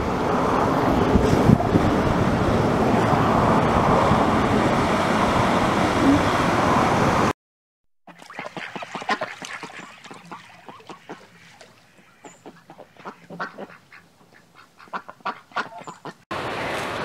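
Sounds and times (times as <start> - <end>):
geese honking: 8.3 - 16.2.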